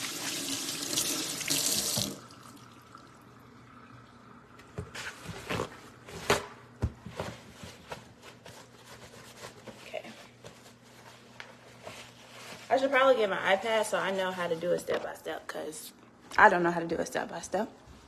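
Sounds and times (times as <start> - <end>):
tap running: 0.8 - 2.2.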